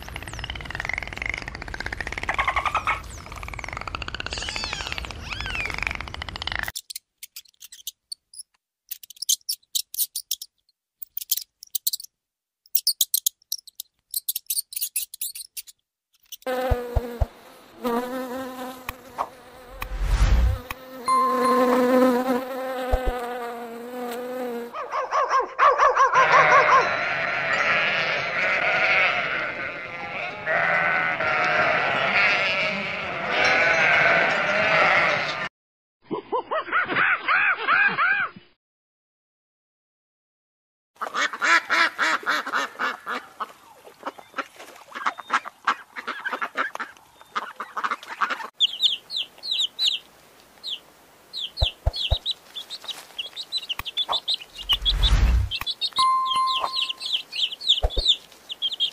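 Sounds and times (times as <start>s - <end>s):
bee buzzing: 16.5s - 24.7s, 54.6s - 57.2s
sheep bleating: 26.2s - 35.5s.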